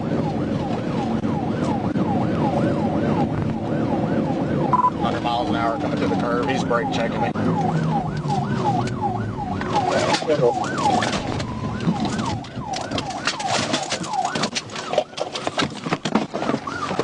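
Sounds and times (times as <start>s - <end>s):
police siren yelping: 0.0s - 15.7s, 16.5s - 17.0s
sharp crackles and knocks: 3.3s - 3.6s, 7.6s - 17.0s.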